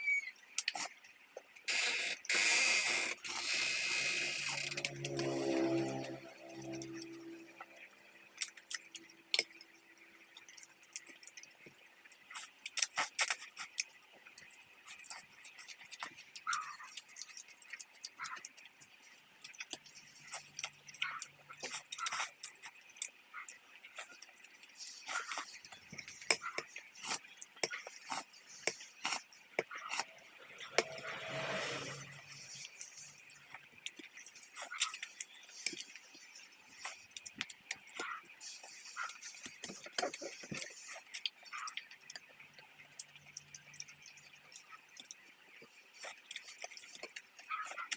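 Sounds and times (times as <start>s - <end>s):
chewing: 0.5s - 1.8s, 2.9s - 47.9s
longer noisy sound: 3.6s - 8.2s.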